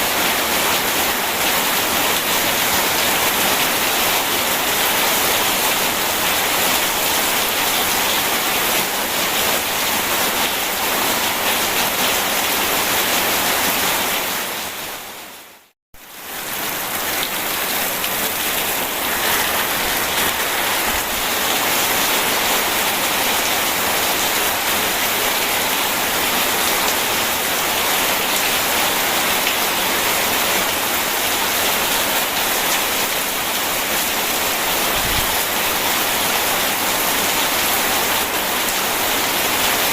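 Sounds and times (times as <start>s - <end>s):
heavy rain: 0.0s - 39.9s
rushing river water: 16.0s - 39.9s.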